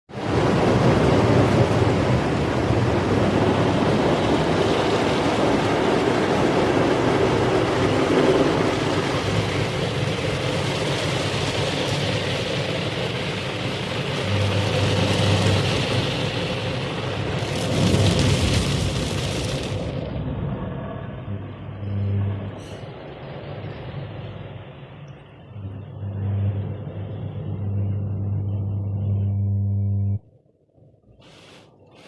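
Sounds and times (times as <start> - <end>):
spraying water rushing: 0.2 - 20.2
low mechanical hum: 0.2 - 30.3.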